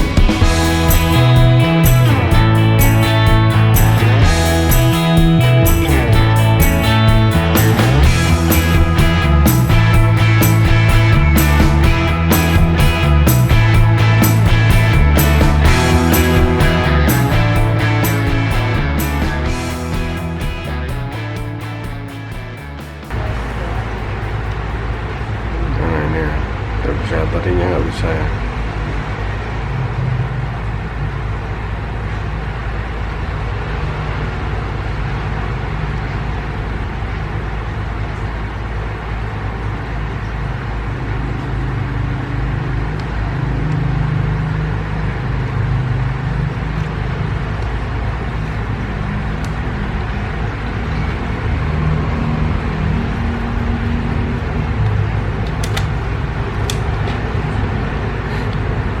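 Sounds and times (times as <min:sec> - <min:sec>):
low rumble: 0:00.0 - 0:26.0.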